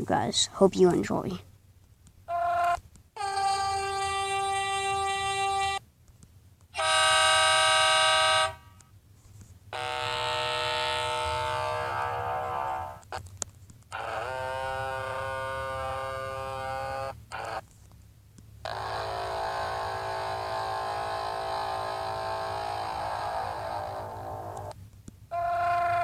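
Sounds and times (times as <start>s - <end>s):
air horn blasts: 2.3s - 5.8s, 6.8s - 8.8s, 9.7s - 13.0s, 18.7s - 24.7s, 25.3s - 26.0s.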